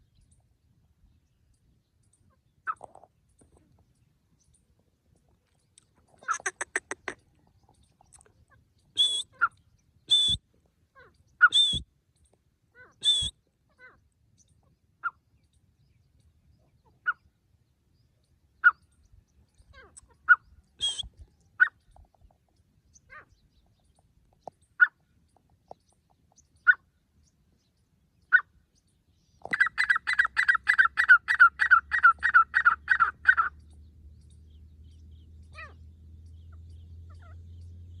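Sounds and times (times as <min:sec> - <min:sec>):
francolin calling: 0:06.2 - 0:07.2, 0:08.9 - 0:10.4, 0:11.1 - 0:11.8, 0:12.9 - 0:13.4, 0:19.6 - 0:21.8, 0:29.4 - 0:33.6.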